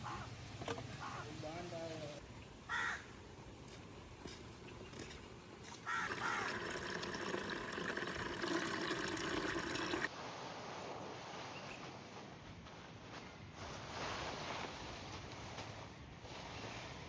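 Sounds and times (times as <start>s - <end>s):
water pouring into a container: 6.0s - 10.1s.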